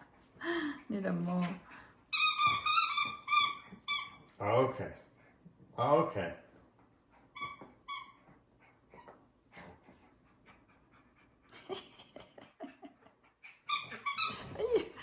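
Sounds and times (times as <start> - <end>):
squeaky toy squeaks: 2.1 - 4.3, 7.4 - 8.2, 13.7 - 14.6.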